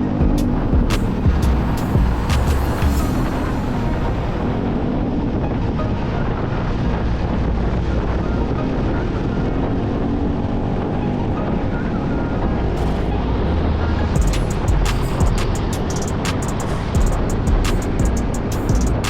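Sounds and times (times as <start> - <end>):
sharp clicks: 14.2 - 16.8.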